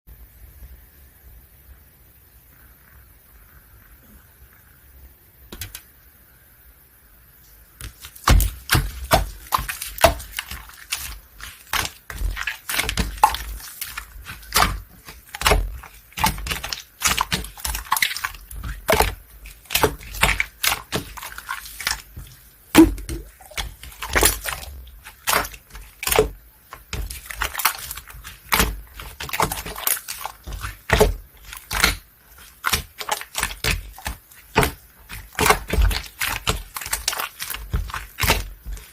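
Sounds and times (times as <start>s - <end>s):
slime squished by hand: 7.8s - 38.9s.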